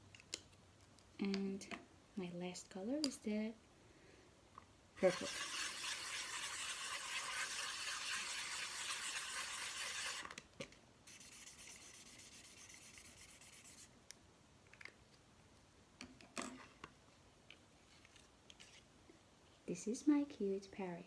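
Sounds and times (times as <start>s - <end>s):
crayon rubbing on paper: 5.0s - 10.2s, 11.1s - 13.9s.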